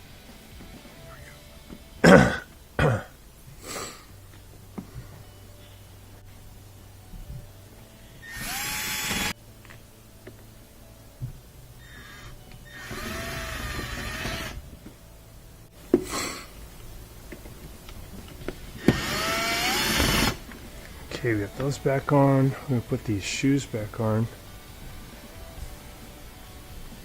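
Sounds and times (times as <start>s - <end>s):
power drill motor whine: 8.2s - 9.4s, 11.8s - 14.6s, 18.8s - 20.4s.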